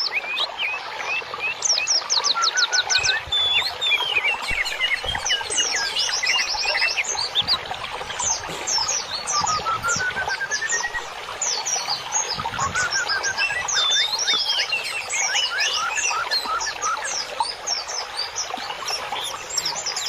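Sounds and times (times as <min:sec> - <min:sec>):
songbirds chirping and singing: 0:00.0 - 0:20.0.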